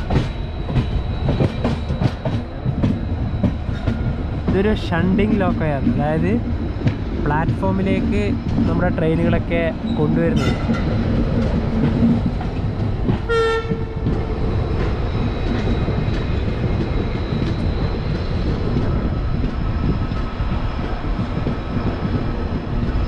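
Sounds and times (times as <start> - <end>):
train wheels rumbling on rails: 0.0 - 23.0
train horn blast: 13.3 - 14.0.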